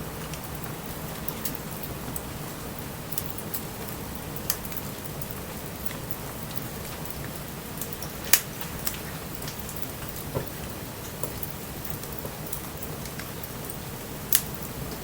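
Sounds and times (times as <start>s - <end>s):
campfire crackling and popping: 0.0s - 15.0s
rain pattering: 0.0s - 15.0s.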